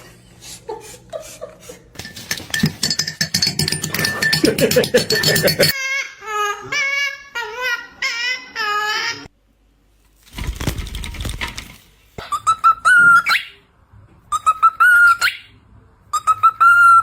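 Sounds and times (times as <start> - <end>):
rustling: 10.0 - 12.1
parrot whistling: 12.2 - 13.6, 14.3 - 17.0.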